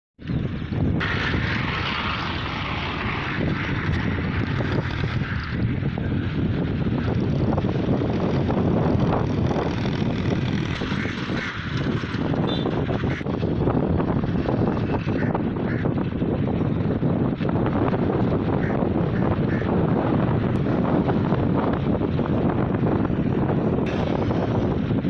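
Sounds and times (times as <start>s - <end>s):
small tractor engine running: 6.4s - 15.1s, 23.2s - 25.0s.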